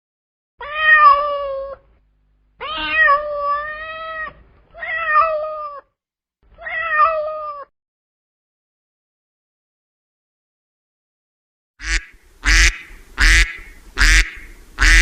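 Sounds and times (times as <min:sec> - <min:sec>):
cat meowing: 0:00.6 - 0:01.9, 0:02.6 - 0:05.9, 0:06.6 - 0:07.7.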